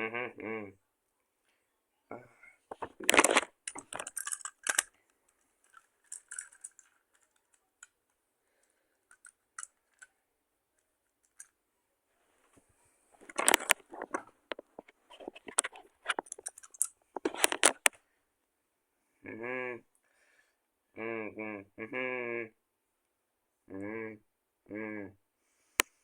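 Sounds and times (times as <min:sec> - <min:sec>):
hard clicking and clattering: 0:02.7 - 0:05.0, 0:13.2 - 0:18.0.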